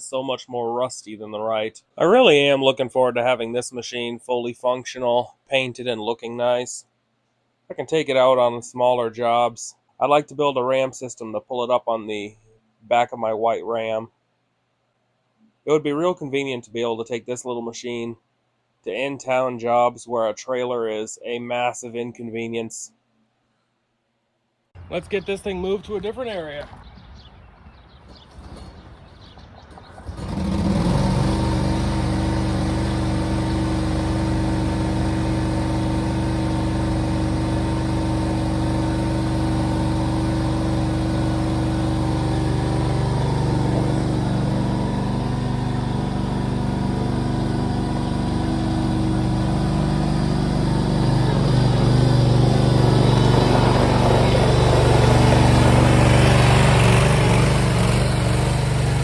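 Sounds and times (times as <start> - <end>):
small engine running: 29.8 - 59.0.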